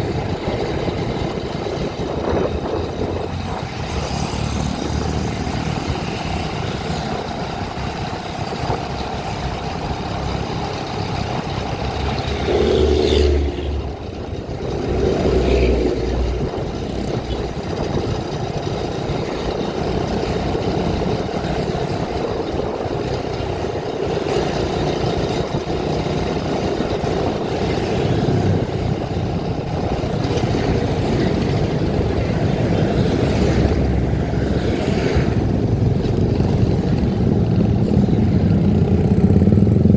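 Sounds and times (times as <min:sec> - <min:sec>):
low rumbles: 0:00.0 - 0:39.9
vehicle engine and road noise: 0:00.0 - 0:39.9.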